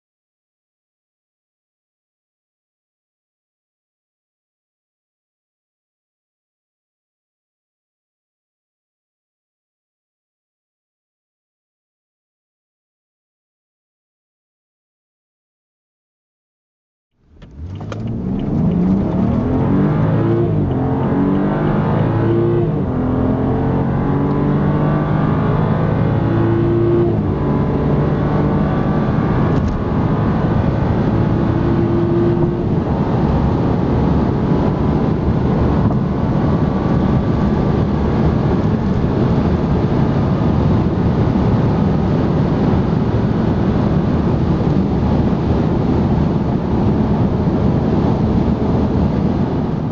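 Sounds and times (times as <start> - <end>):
car engine accelerating hard: 17.2 - 49.9
wind and tyre noise: 17.2 - 49.9.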